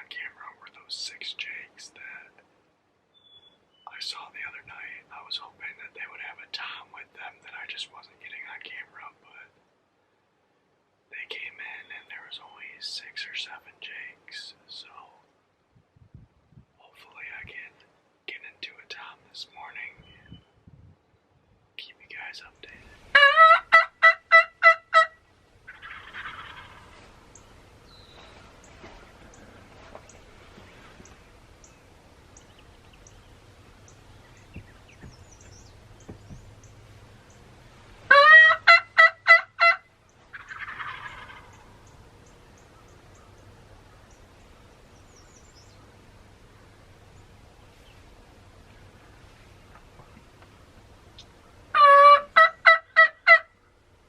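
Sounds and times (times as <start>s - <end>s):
turkey yelps: 23.1s - 27.1s, 38.1s - 41.8s, 51.7s - 53.5s
distant turkey gobble: 23.1s - 31.4s, 38.1s - 44.8s, 48.5s - 53.6s.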